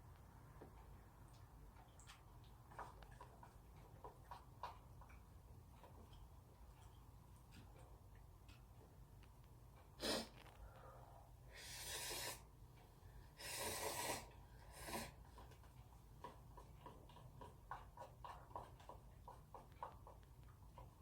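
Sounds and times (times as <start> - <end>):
wet chewing clicks: 0.8 - 9.5.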